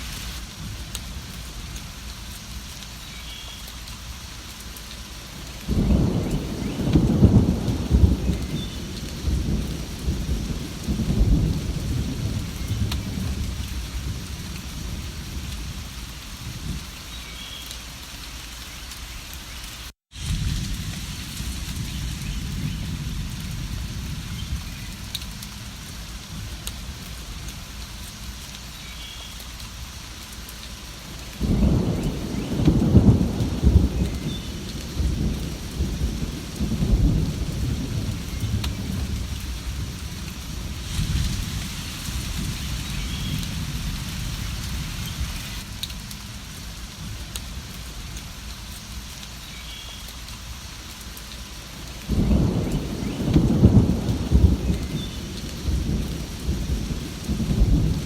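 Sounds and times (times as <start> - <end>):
steady rain: 0.0 - 58.0
rolling thunder: 5.7 - 15.8, 20.2 - 27.5, 31.4 - 45.9, 52.0 - 58.0.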